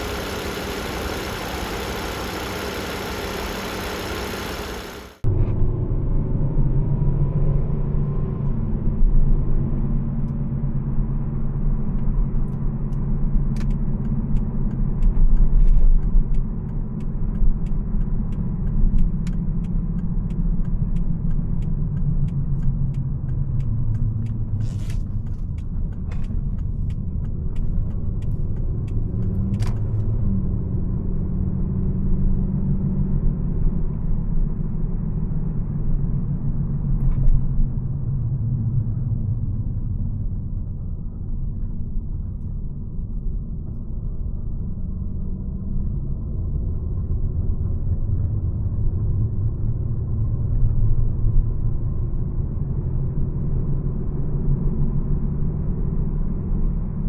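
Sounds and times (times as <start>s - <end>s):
car engine running: 0.0s - 5.4s
road rumble: 0.0s - 9.2s.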